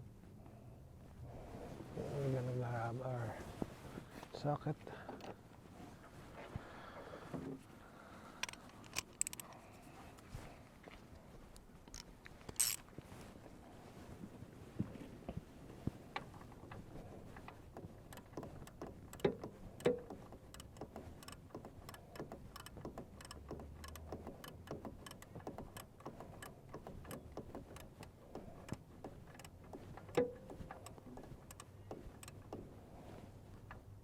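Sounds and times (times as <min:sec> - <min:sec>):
ratchet wrench clicking: 0:08.4 - 0:09.4, 0:12.6 - 0:12.8, 0:18.0 - 0:32.6
metal knocks: 0:17.8 - 0:32.7.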